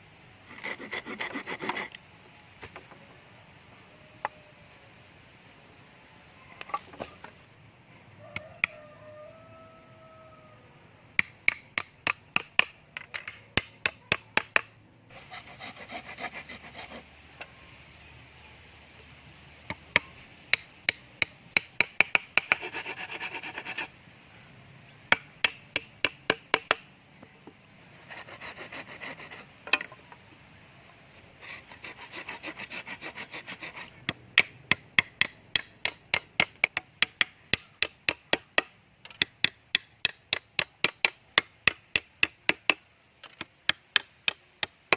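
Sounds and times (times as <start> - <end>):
rasping saw strokes: 0.5 - 2.0, 15.1 - 17.1, 22.4 - 23.9, 28.0 - 29.5, 31.2 - 34.1.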